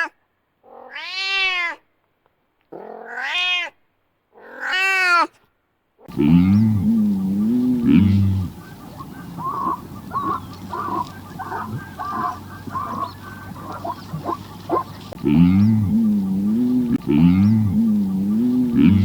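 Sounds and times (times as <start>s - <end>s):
low wavering animal call: 6.1s - 19.0s
waterfowl honking: 6.1s - 19.0s.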